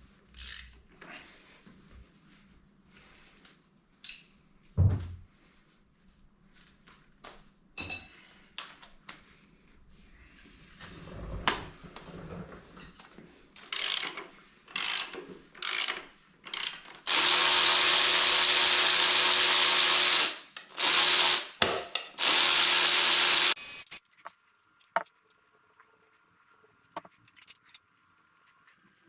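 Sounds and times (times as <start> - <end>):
power tool motor whine: 17.1 - 21.5, 22.2 - 23.9.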